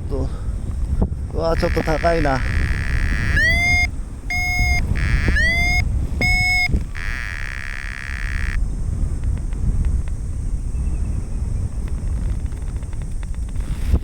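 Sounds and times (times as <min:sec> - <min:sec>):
wind rushing on microphone: 0:00.0 - 0:14.0
steady buzzing tone: 0:01.1 - 0:09.3
short electronic beeps: 0:01.6 - 0:08.6.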